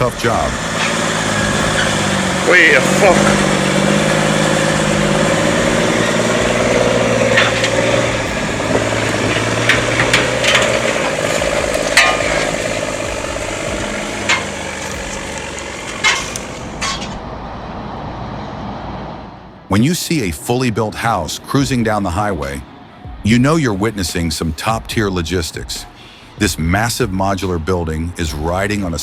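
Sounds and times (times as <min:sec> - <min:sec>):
heavy truck engine running: 0:00.0 - 0:29.0
sharp metal clanks and knocks: 0:04.8 - 0:17.2.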